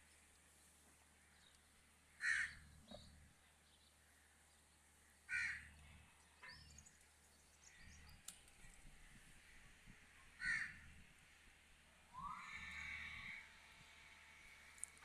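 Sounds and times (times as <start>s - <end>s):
bird calling: 12.1s - 13.4s.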